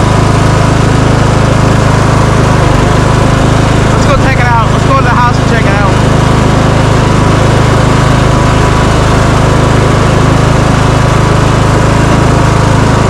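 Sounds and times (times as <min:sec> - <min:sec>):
small tractor engine running: 0:00.0 - 0:13.0.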